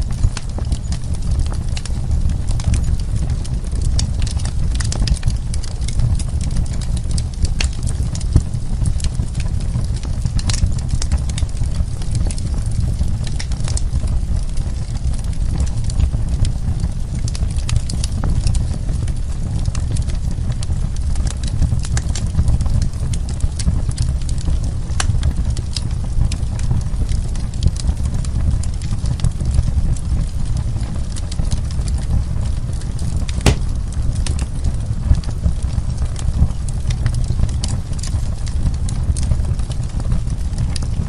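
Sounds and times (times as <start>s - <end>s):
wood fire crackling: 0.0s - 41.0s
sharp pop of burning wood: 33.4s - 34.2s.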